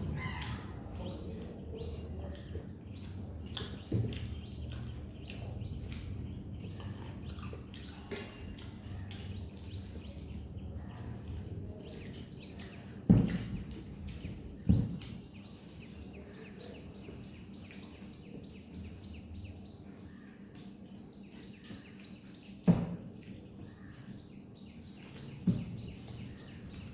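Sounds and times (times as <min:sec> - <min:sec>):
low steady hum: 0:00.0 - 0:20.2
person chewing food: 0:03.5 - 0:09.8.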